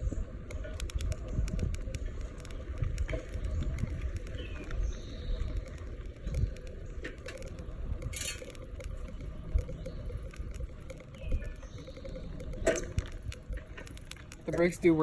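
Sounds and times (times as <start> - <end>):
bicycle clicks and rattles: 0.0 - 15.0
wind buffeting microphone: 0.0 - 15.0.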